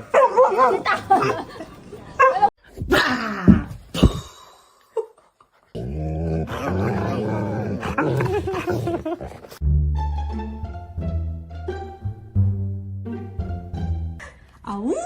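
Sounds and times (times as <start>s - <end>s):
music: 9.6s - 14.3s.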